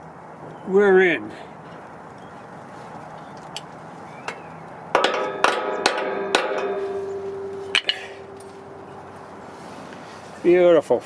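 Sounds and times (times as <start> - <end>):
hammer blows on metal bolt: 4.9 - 9.4.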